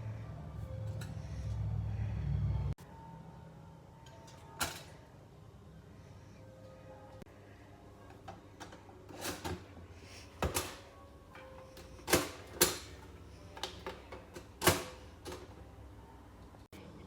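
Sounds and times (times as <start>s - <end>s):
faint steady hum: 0.0s - 12.1s.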